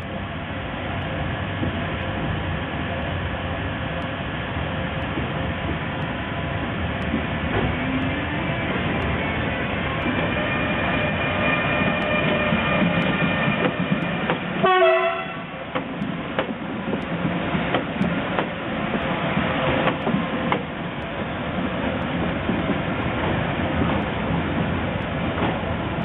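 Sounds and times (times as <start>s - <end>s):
electric locomotive whine: 0.0s - 26.0s
train horn blast: 14.6s - 15.6s
wheels clicking over rail joints: 15.6s - 26.0s.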